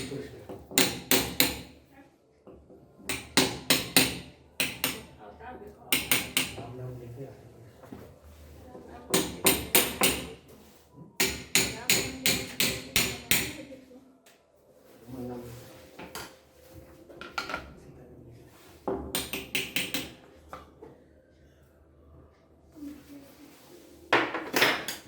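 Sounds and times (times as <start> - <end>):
hammer strikes: 0.7 - 1.8, 3.1 - 5.1, 5.9 - 6.6, 9.1 - 10.4, 11.2 - 13.6, 19.1 - 20.2.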